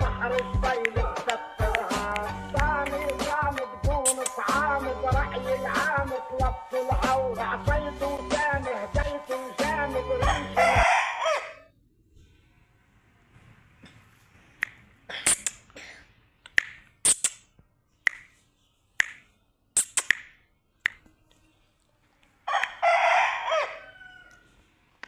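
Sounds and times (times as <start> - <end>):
rooster crowing: 9.8 - 11.7, 22.5 - 24.6.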